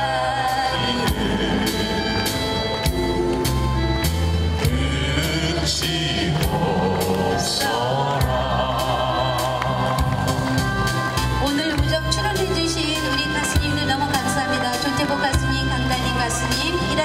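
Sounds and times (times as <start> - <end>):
person singing with vibrato: 0.0 - 10.6
instrumental accompaniment with beat: 0.0 - 17.0.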